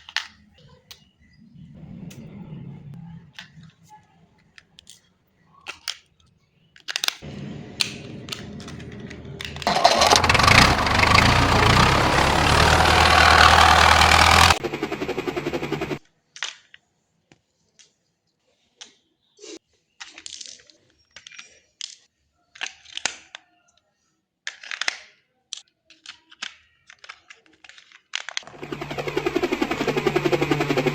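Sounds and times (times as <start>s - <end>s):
clicks of toy being handled: 0.0s - 1.0s, 4.5s - 7.2s, 16.3s - 18.0s, 20.0s - 23.8s, 24.4s - 28.5s
toy electronic engine sound: 8.1s - 16.0s, 28.4s - 30.9s
toy electronic hum: 28.4s - 30.9s.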